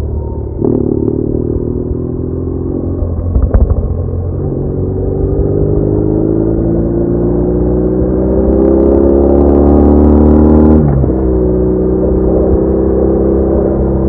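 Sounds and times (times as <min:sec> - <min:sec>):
low wind rumble: 0:00.0 - 0:08.9
motorcycle engine accelerating: 0:00.0 - 0:14.0.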